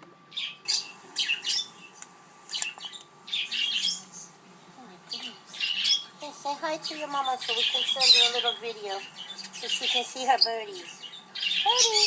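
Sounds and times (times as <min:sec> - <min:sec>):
parrots squawking: 0:00.3 - 0:01.9, 0:02.5 - 0:04.3, 0:05.1 - 0:06.2, 0:07.0 - 0:12.0.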